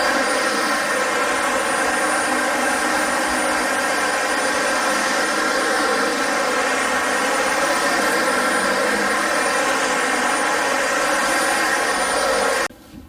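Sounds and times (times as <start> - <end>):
vacuum cleaner running: 0.0 - 12.7.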